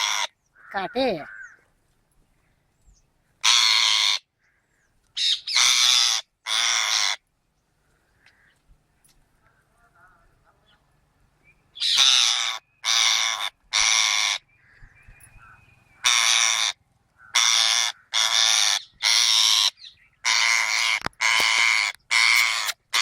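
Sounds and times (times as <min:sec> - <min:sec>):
parrot squawking harshly: 0:00.0 - 0:01.6, 0:03.4 - 0:04.2, 0:05.2 - 0:07.2, 0:11.8 - 0:14.4, 0:16.0 - 0:23.0.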